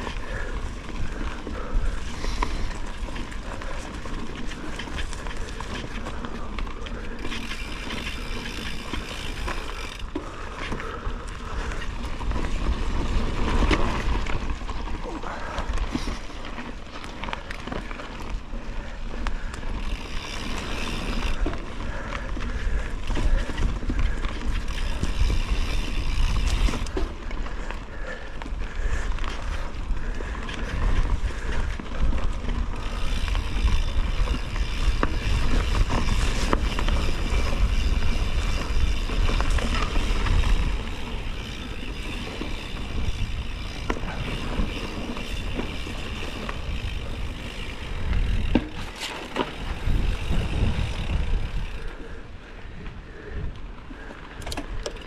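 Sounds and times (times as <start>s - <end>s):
bike rattles and knocks: 0.0s - 28.2s, 28.8s - 52.1s, 54.2s - 55.0s
bike tyre noise: 0.0s - 55.0s
wind buffeting microphone: 19.4s - 27.6s, 28.4s - 55.0s.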